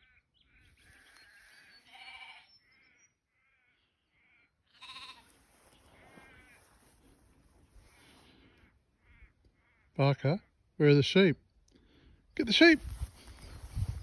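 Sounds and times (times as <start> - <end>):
faint sheep bleating: 0.9 - 2.5, 3.4 - 5.6.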